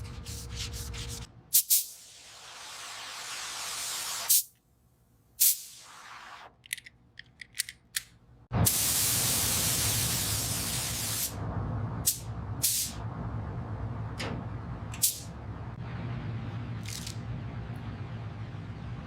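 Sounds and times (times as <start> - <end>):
hissing spray: 1.6 - 4.5, 5.4 - 6.4, 8.6 - 11.4
steady low hum: 11.3 - 19.0.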